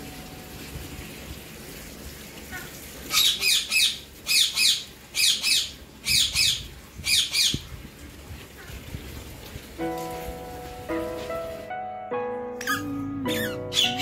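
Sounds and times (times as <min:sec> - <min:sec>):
bird harsh two-note calls: 0:12.6 - 0:14.0.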